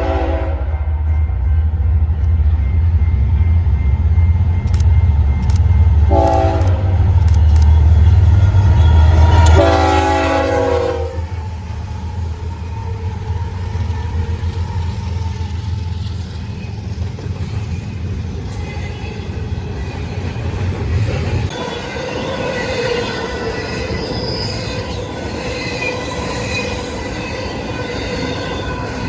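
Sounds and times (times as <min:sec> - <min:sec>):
train air horn blasts: 0:00.0 - 0:01.1, 0:06.0 - 0:07.2, 0:08.4 - 0:11.4
diesel train engine rumble: 0:00.0 - 0:29.0.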